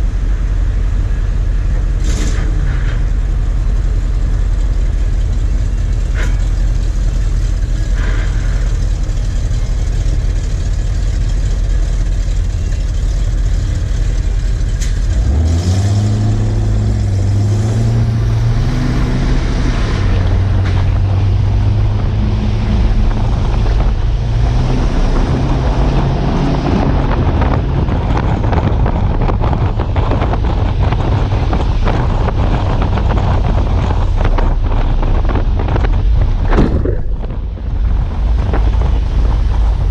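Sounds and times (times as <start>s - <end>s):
truck engine revving under load: 0.0s - 39.9s.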